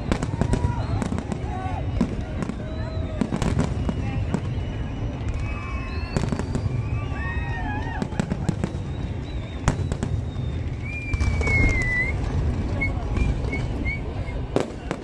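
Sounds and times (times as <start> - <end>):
fireworks bangs and cracks: 0.0 - 15.0.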